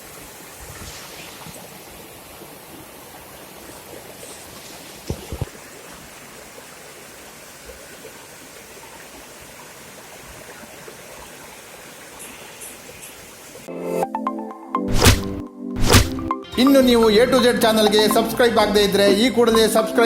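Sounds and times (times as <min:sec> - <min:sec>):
rushing floodwater: 0:00.0 - 0:13.7
sharp knocks: 0:14.9 - 0:16.3.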